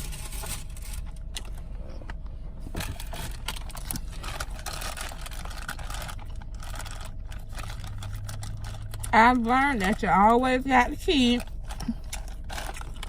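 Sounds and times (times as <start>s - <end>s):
low hum inside car: 0.0s - 13.0s
food wrappers crackling: 2.8s - 13.0s.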